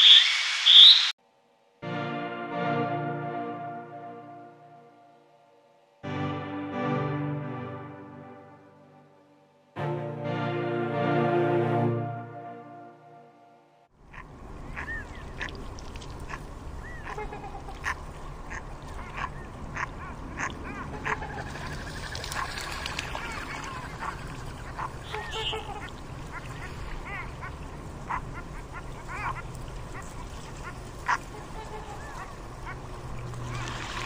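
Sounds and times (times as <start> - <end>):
gulls calling: 0.0 - 1.2, 14.0 - 34.0
ducks calling: 14.0 - 34.0.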